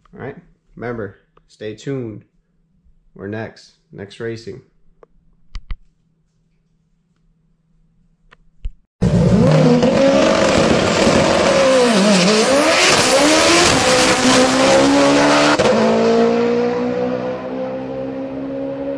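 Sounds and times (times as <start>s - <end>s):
car engine revving: 9.0s - 18.9s.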